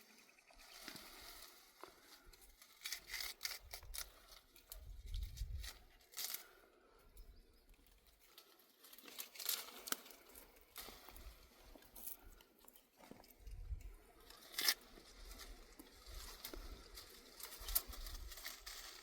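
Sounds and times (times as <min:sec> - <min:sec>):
rustling and crackling: 0:07.9 - 0:19.0.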